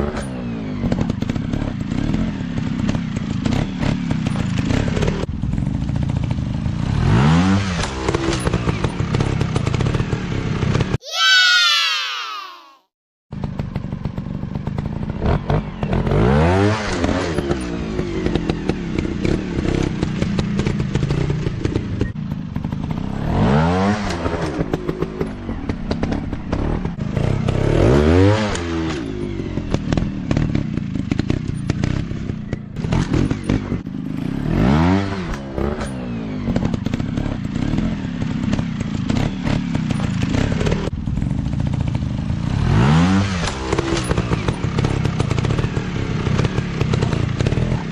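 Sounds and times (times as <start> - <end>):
dirt bike engines revving: 14.9 - 47.9.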